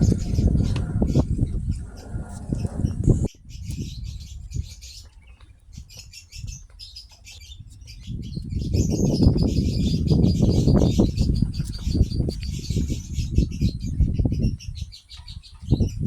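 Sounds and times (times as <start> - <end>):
low rumbling noise: 0.0 - 3.3
small birds chirping: 0.0 - 16.0.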